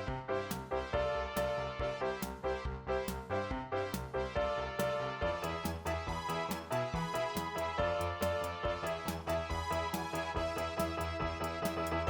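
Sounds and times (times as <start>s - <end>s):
upbeat electronic music: 0.0s - 12.0s.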